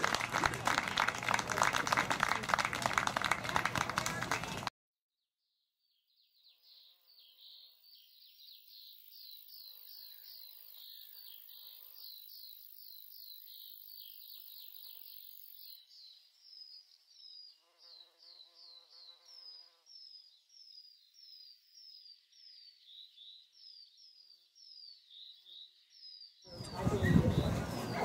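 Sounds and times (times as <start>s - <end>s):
faint distant voices: 0.0s - 4.7s, 26.5s - 28.0s.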